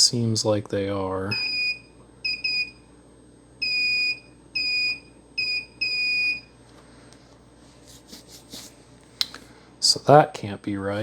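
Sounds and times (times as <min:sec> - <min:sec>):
multimeter high-pitched beeps: 0:01.3 - 0:02.8, 0:03.6 - 0:06.5.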